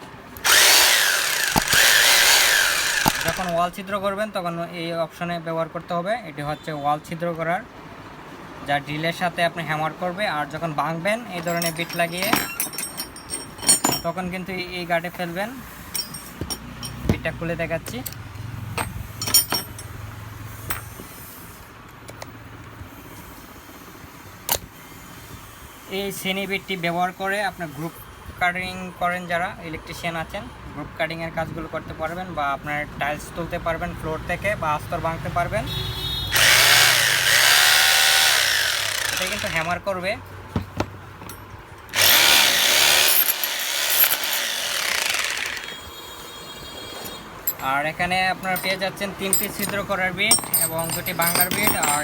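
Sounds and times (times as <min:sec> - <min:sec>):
drill handling clicks: 0:00.4 - 0:03.8, 0:36.4 - 0:39.7, 0:41.4 - 0:45.7.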